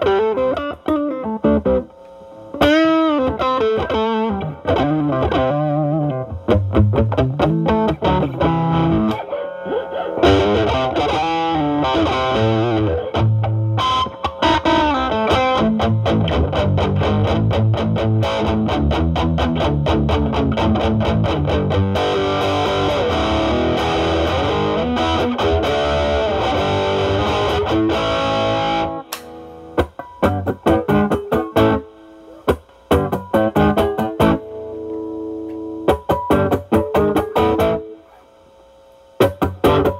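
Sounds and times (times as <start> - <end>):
overdriven electric guitar: 0.0 - 38.5, 39.2 - 39.9.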